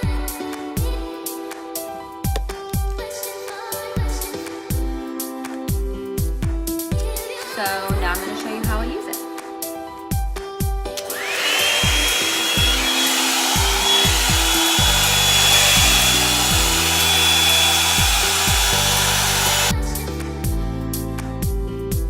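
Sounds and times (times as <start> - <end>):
background music with steady beat: 0.0 - 22.0
hot-air brush dryer whine and air rush: 11.0 - 19.7.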